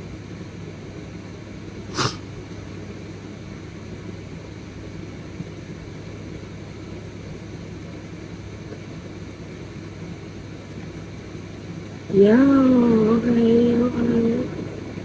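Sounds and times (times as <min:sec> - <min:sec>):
low background hum and hiss: 0:00.0 - 0:15.0
brief sharp sound: 0:01.9 - 0:02.2.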